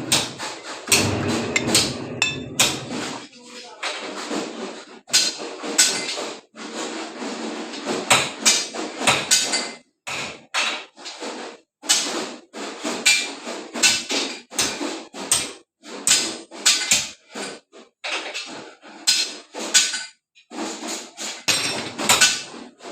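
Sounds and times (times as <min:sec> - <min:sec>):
metal bar clanking in bending machine: 0:00.0 - 0:03.2.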